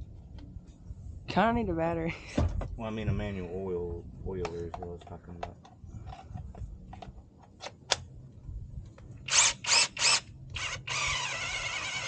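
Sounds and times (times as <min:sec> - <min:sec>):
electric chainsaw motor running: 0:09.3 - 0:12.0.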